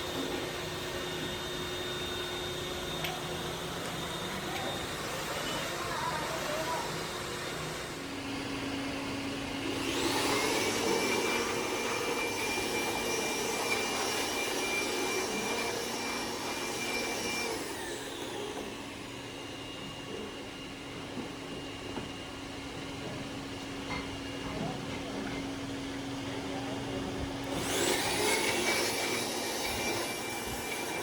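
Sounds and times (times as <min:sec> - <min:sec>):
electric motor whining: 0:09.6 - 0:19.4, 0:27.4 - 0:31.0.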